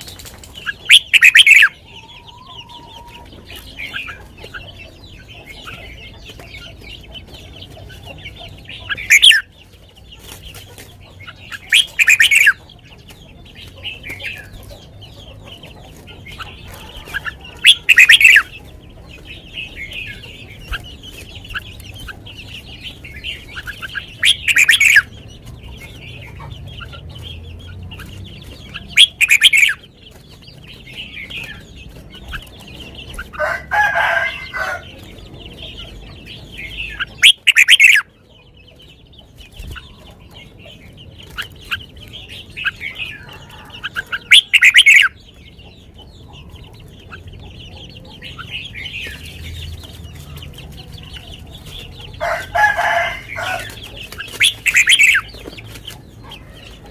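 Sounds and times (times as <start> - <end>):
chickens clucking: 0.0 - 56.9
soft bird chirping: 0.0 - 56.9
bird whistled phrases: 0.9 - 1.7.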